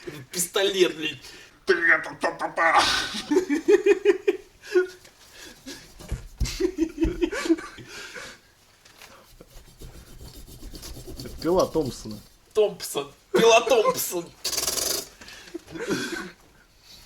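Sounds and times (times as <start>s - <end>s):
man laughing: 2.6s - 5.0s, 6.4s - 8.2s, 13.4s - 14.2s.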